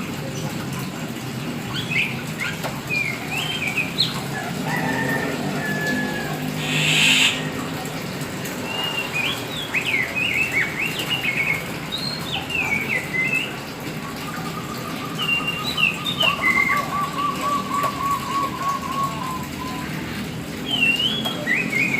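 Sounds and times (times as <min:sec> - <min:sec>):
bird singing whistled notes: 0:06.6 - 0:07.5.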